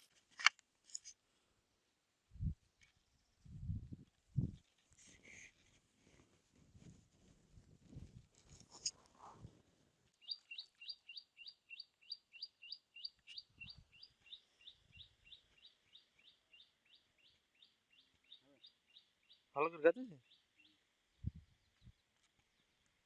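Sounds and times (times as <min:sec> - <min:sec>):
faint rustles and knocks: 0:02.8 - 0:10.2
bird chirping: 0:10.2 - 0:22.9.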